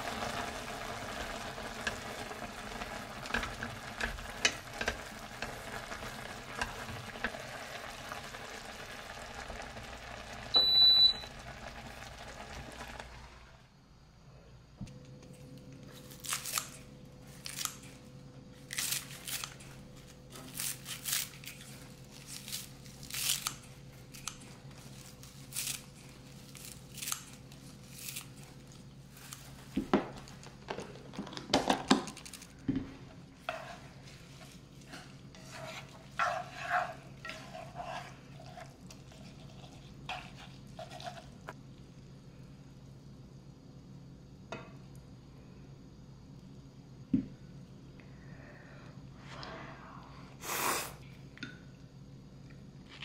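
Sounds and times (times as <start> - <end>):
crisp crunching tearing: 16.0 - 17.8, 20.5 - 24.3, 24.9 - 28.5.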